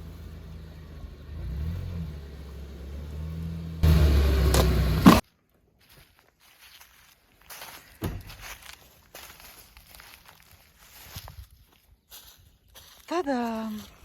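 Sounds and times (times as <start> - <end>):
van engine revving: 0.0 - 5.2.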